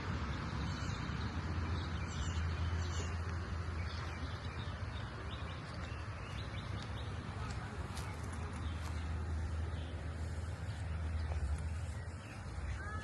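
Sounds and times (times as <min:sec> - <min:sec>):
birds chirping: 0:00.0 - 0:13.0
low outdoor rumble: 0:00.0 - 0:13.0.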